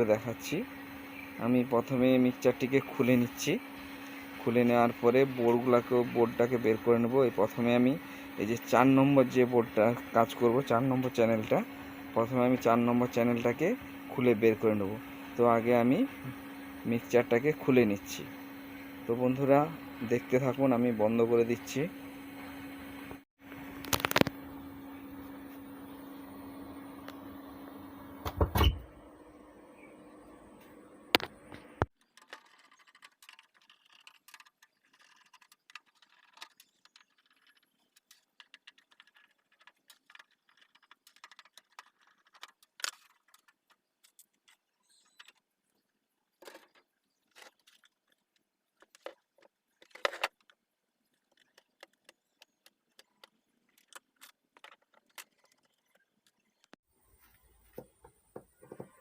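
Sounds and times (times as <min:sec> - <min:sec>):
mixer hum and hiss: 0:00.0 - 0:31.9.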